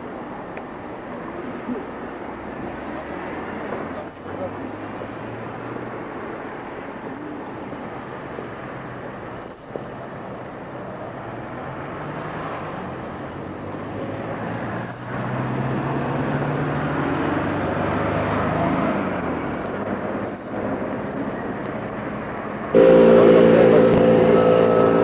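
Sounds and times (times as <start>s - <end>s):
background noise: 0.0s - 25.0s
vehicle engine passing by: 1.7s - 9.1s, 11.0s - 25.0s.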